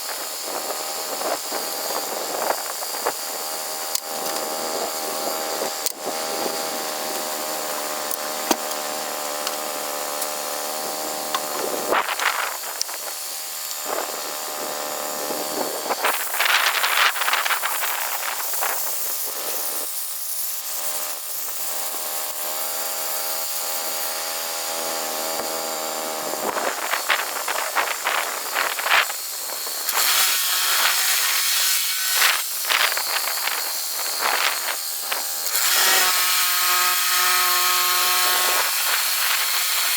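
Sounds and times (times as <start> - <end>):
power saw cutting wood: 0.0 - 39.9.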